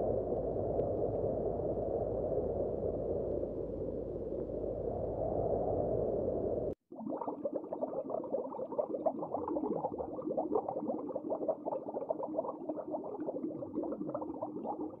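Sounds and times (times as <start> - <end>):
faint steady hum: 0.0 - 6.8
underwater crackling and popping: 6.9 - 15.0.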